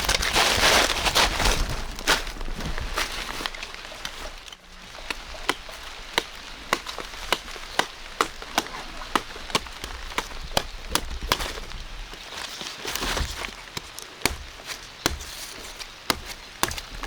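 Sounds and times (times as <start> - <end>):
sharp chopping strokes: 5.5 - 11.6, 13.0 - 17.0.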